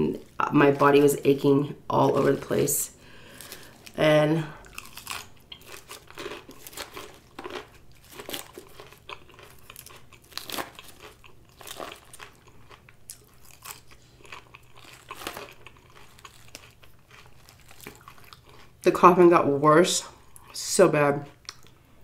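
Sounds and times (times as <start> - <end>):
person chewing crisp salad: 2.0 - 18.8, 21.3 - 21.9.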